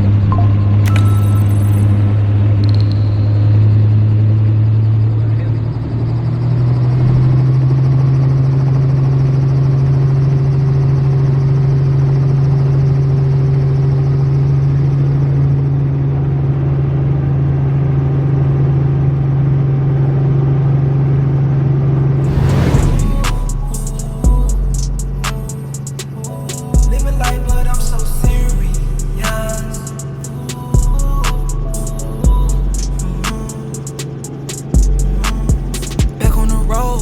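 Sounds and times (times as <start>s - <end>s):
helicopter engine and rotors: 0.0s - 26.9s
music: 0.3s - 3.8s, 22.3s - 37.0s.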